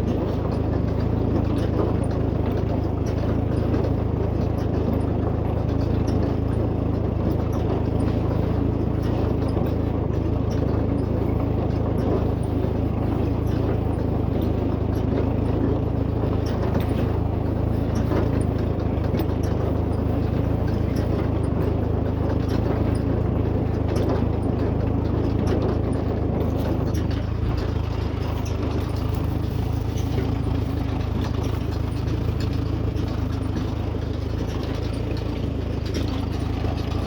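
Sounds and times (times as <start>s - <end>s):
baler running: 0.0s - 37.0s.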